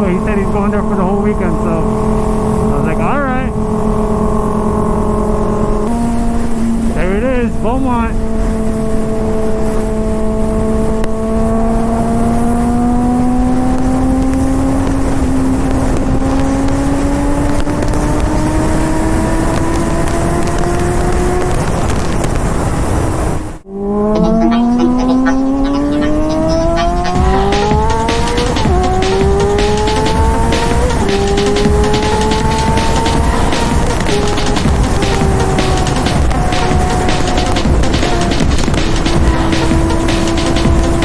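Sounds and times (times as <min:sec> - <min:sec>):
wind rush on microphone: 0:00.0 - 0:23.6
motorcycle engine accelerating: 0:00.0 - 0:41.0.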